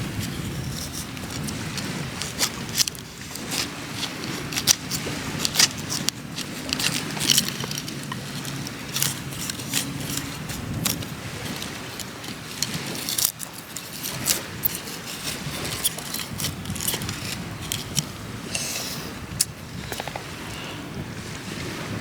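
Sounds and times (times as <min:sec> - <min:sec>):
campfire crackling: 0:00.0 - 0:20.5.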